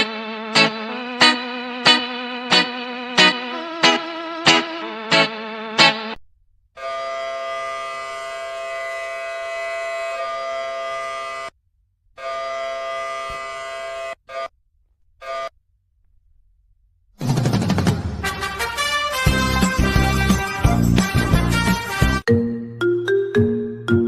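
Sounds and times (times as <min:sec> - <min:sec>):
buzzer tone: 0:12.2 - 0:14.6, 0:15.2 - 0:15.6.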